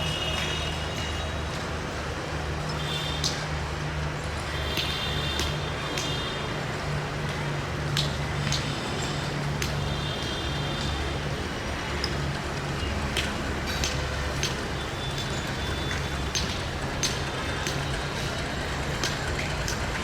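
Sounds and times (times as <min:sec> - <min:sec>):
train wheels clicking and clanking: 0:11.9 - 0:20.0.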